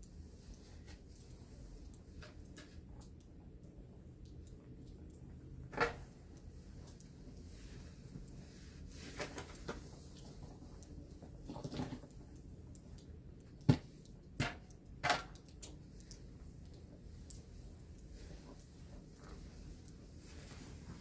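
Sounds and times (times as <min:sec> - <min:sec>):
soft rustling: 0:06.5 - 0:12.4, 0:15.9 - 0:21.0.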